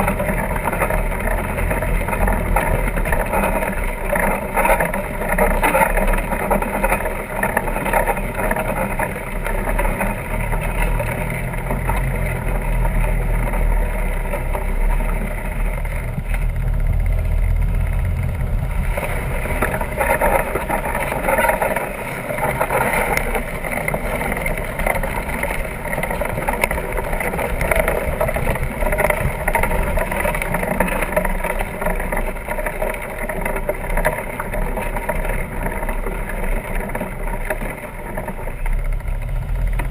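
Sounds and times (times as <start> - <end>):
low wind buffeting: 15.2 - 30.7.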